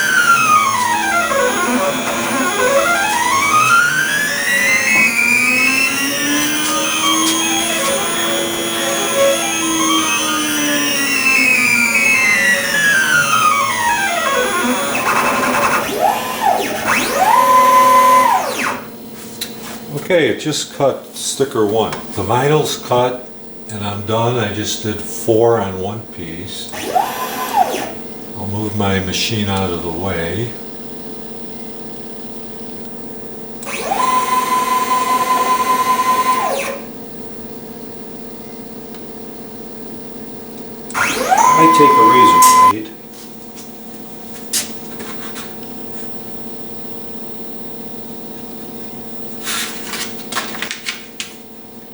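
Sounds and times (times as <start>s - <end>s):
stepper motors whining: 0.0s - 19.1s, 26.7s - 28.1s, 33.6s - 37.2s, 40.6s - 42.9s.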